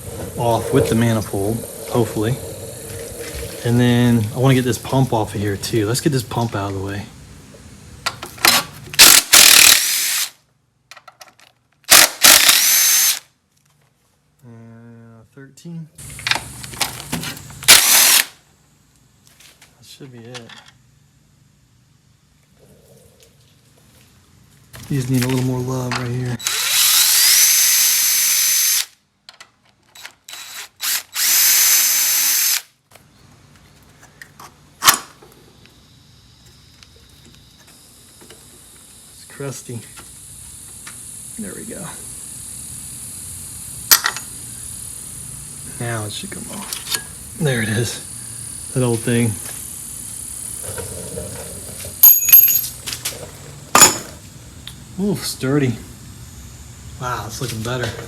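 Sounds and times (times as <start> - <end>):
power tool whirring: 9.0 - 10.3, 11.9 - 13.2, 17.7 - 18.3, 26.4 - 28.9, 30.0 - 32.7.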